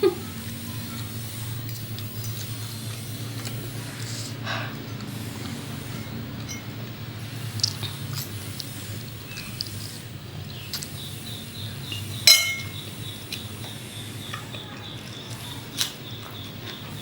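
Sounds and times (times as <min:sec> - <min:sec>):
low steady hum: 0:00.0 - 0:17.0
utensil clinking against dish: 0:04.9 - 0:06.8, 0:11.9 - 0:16.8.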